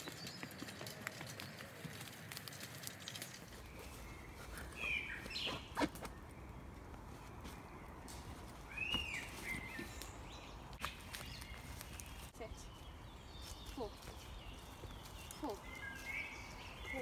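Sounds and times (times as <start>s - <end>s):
footsteps on woodland floor: 6.9s - 17.0s.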